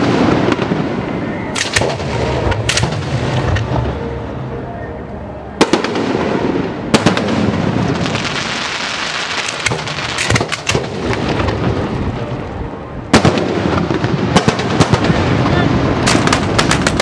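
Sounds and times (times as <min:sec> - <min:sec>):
fireworks loud bangs: 0:00.0 - 0:04.0, 0:05.6 - 0:12.3, 0:13.1 - 0:17.0
fireworks crackling hiss: 0:07.8 - 0:10.4.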